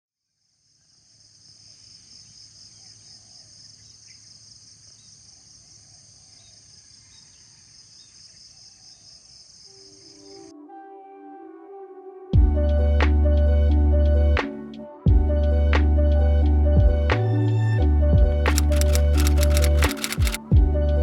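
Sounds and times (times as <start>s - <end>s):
insects chirping: 0.4s - 10.5s.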